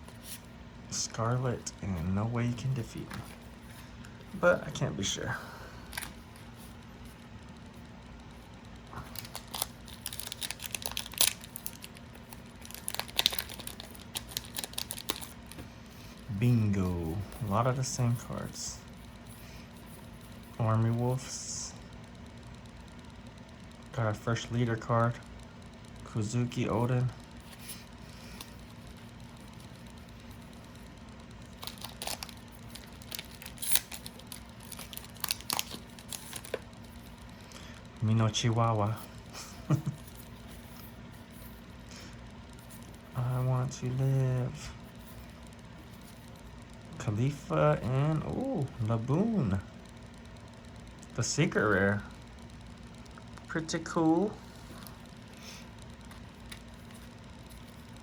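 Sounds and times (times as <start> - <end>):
foil wrapper crinkling and tearing: 5.8 - 6.4, 9.0 - 18.5, 31.4 - 37.3.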